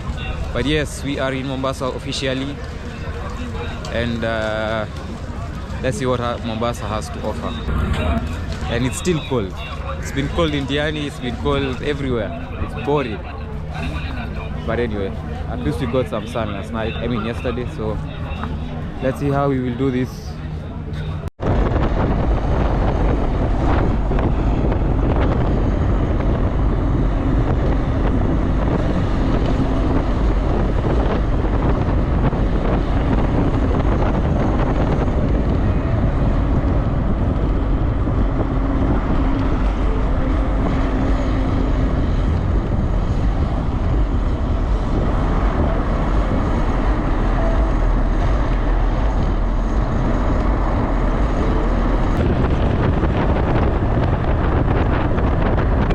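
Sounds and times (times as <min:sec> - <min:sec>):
low engine drone: 0:00.0 - 0:55.9
wind buffeting microphone: 0:00.0 - 0:55.9.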